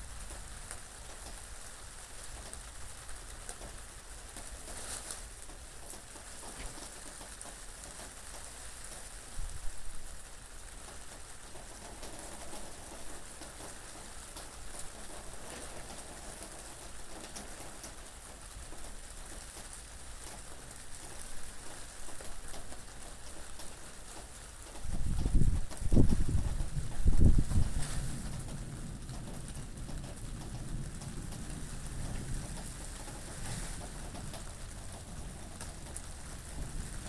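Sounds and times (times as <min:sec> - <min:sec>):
steady rain falling: 0:00.0 - 0:37.0
rain drop ticks: 0:28.2 - 0:37.0.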